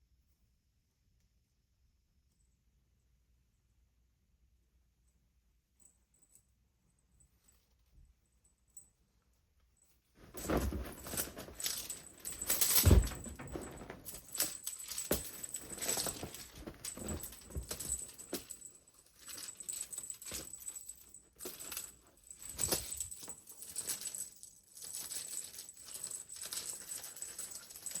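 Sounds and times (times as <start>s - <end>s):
cat toy clattering and rustling: 10.2s - 28.0s
thump: 10.3s - 14.2s.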